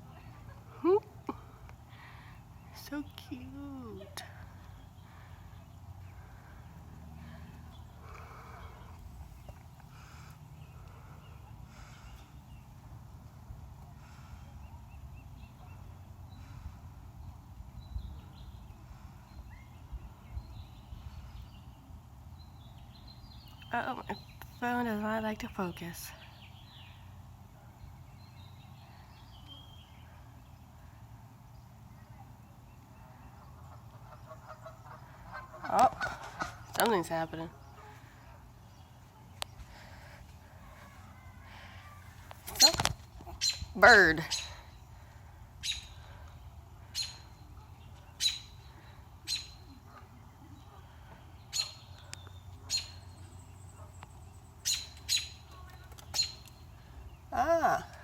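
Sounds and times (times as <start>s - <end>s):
goslings peeping: 33.4s - 37.2s.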